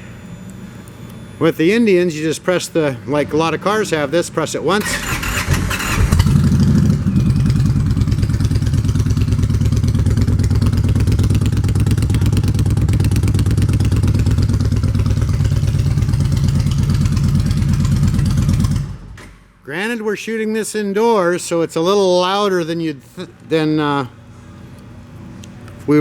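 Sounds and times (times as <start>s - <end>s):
motorcycle engine idling: 5.3s - 19.2s.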